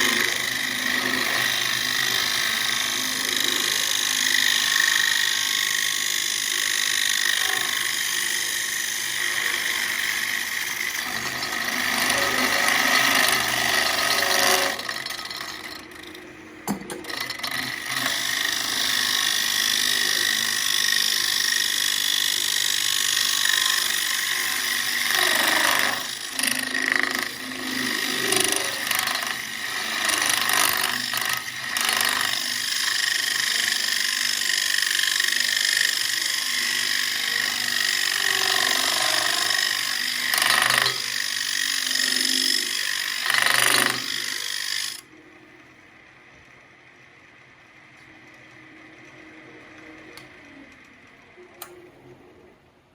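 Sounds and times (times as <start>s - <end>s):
tool scraping wood: 0.0s - 16.1s, 24.5s - 32.5s, 35.5s - 45.0s
wood lathe spinning: 0.0s - 51.7s.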